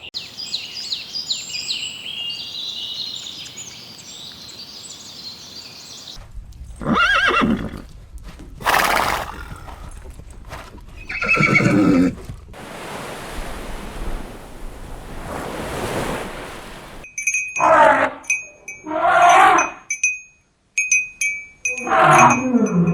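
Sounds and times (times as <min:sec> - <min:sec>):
noisy blow: 0:12.6 - 0:17.0.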